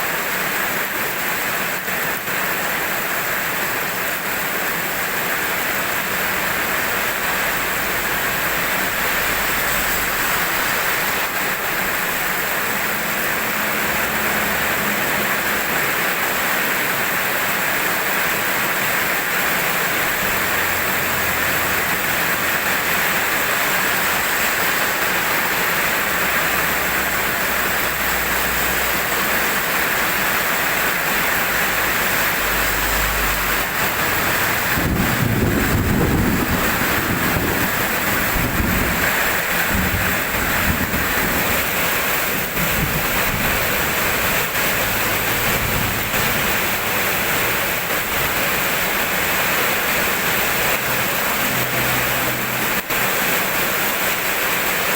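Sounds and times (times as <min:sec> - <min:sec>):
steady rain falling: 0:00.0 - 0:54.9
low rumble of thunder: 0:34.6 - 0:41.7.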